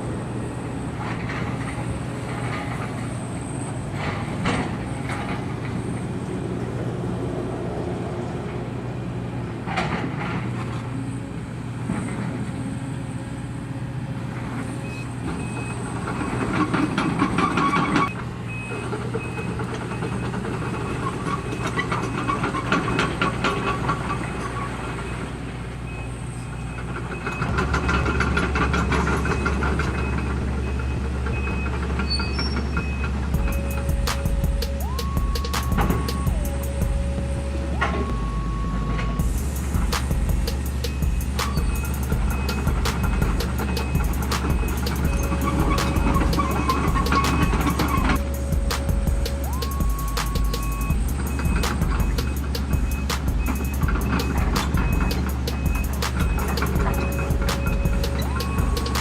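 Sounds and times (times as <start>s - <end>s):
excavator diesel engine: 0.0s - 59.0s
metal scraping: 38.7s - 59.0s.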